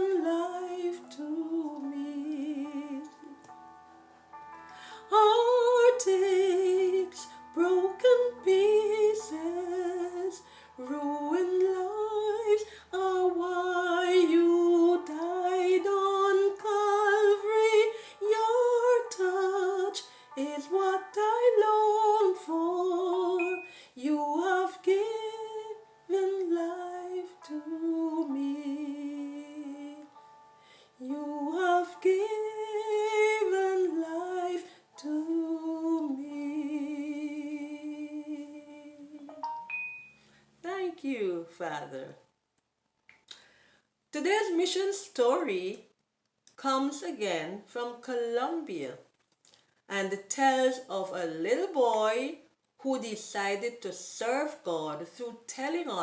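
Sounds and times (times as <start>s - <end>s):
woman singing slow melody: 0.0s - 3.8s, 5.0s - 30.3s, 31.0s - 39.4s.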